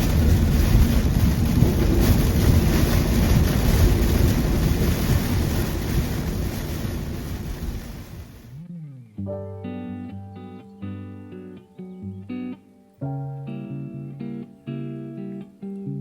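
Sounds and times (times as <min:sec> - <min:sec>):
car driving through heavy rain: 0:00.0 - 0:08.6.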